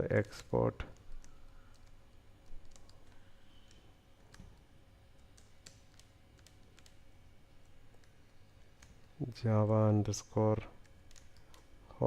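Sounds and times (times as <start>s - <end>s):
low background hum: 0.0s - 12.0s
keyboard typing clicks: 0.9s - 7.0s, 10.8s - 11.7s.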